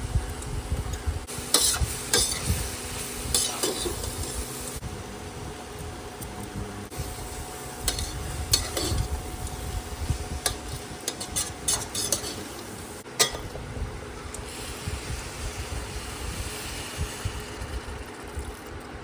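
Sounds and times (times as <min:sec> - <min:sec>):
low sizzle: 0:00.0 - 0:19.0
spatula scraping and knocking pan: 0:01.4 - 0:02.6, 0:07.9 - 0:09.2, 0:10.3 - 0:12.6.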